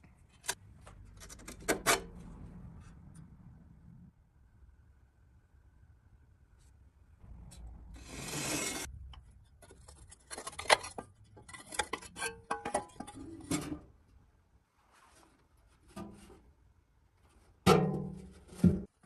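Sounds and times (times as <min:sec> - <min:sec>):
rasping scrape: 0:07.5 - 0:12.3.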